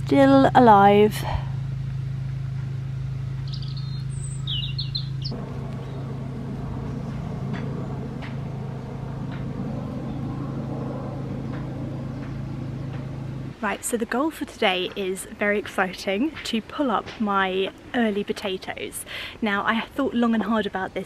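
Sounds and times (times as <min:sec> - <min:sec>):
low outdoor hum: 0:00.0 - 0:21.0
bird chirping: 0:03.4 - 0:13.5.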